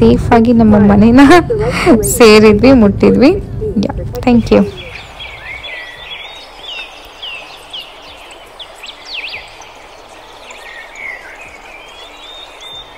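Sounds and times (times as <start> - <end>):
birds chirping: 0.0 - 12.9
steady hiss: 4.6 - 12.9.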